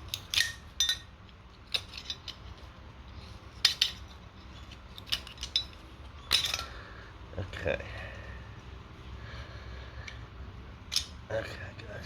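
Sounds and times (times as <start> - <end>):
tool clinking on metal: 0.1 - 1.1, 3.6 - 6.8.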